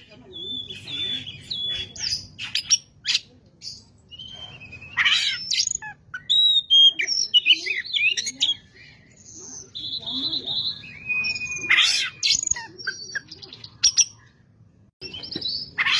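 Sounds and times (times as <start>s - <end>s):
bird singing whistled notes: 4.0s - 13.3s, 15.0s - 15.8s.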